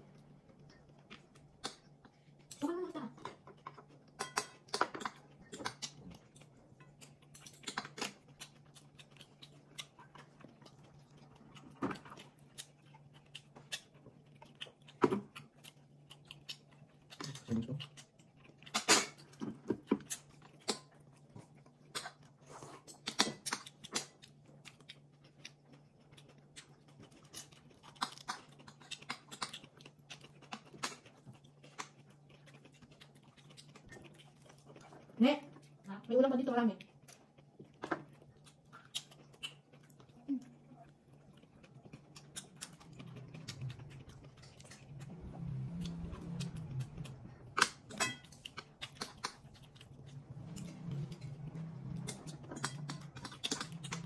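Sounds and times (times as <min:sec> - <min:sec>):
person chewing with wet smacks: 0:00.0 - 0:54.0
steady low hum: 0:24.1 - 0:54.0.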